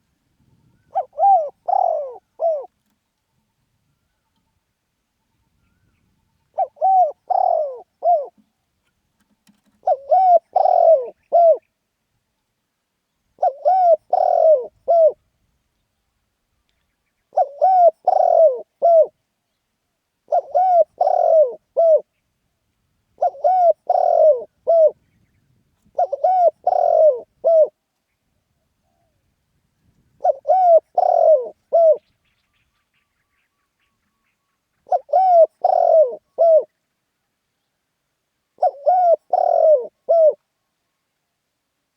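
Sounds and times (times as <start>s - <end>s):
dove cooing: 0.6s - 3.0s, 5.6s - 8.5s, 9.4s - 11.7s, 13.4s - 15.2s, 17.3s - 19.2s, 20.2s - 22.1s, 23.2s - 25.0s, 25.8s - 27.8s, 30.1s - 32.2s, 34.2s - 36.7s, 38.6s - 40.4s.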